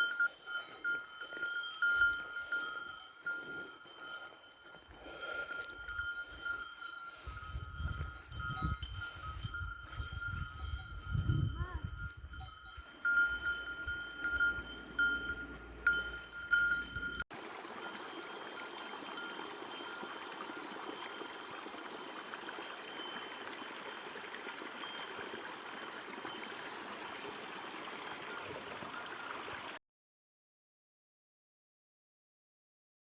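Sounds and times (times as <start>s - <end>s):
livestock bells clanking: 0.0s - 26.8s
stream water flowing: 12.7s - 29.8s.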